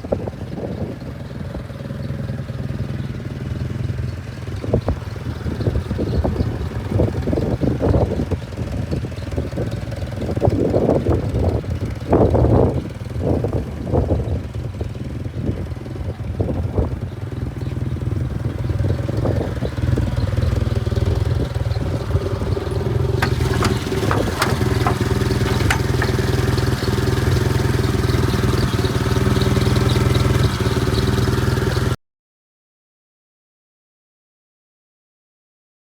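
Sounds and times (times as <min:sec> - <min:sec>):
forklift engine idling: 0:18.2 - 0:31.9
sharp clacks: 0:23.2 - 0:27.0.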